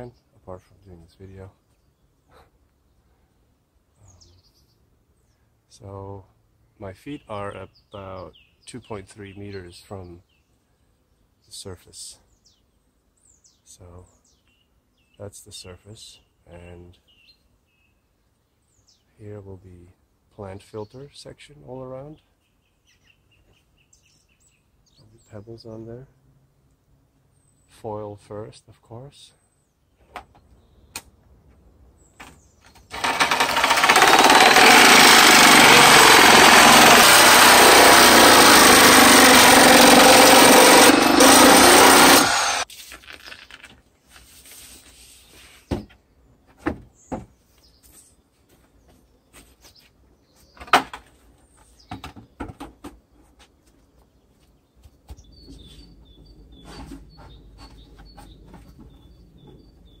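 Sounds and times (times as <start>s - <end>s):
reciprocating saw cutting panel: 32.8s - 42.7s.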